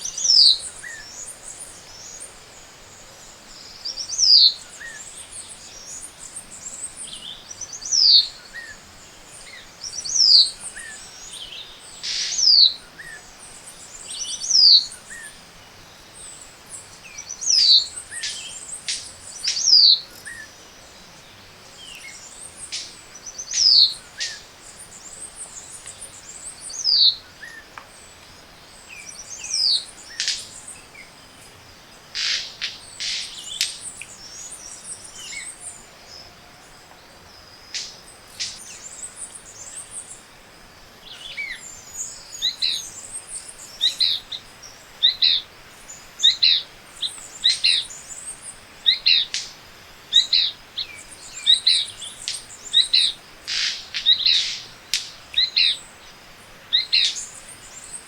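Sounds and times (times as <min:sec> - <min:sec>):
birds calling: 0:41.1 - 0:58.0
sharp snaps: 0:53.5 - 0:55.2.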